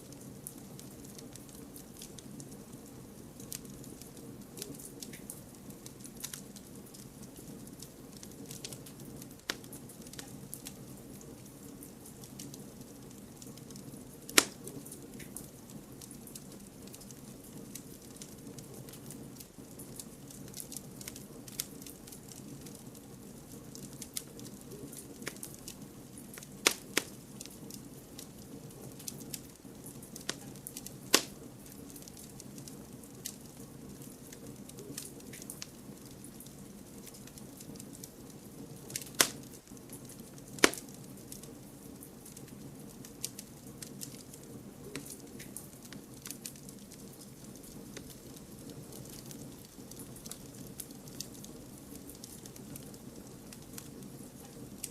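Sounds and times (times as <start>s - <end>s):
burning wood popping: 0.0s - 54.9s
campfire crackling: 0.0s - 54.9s.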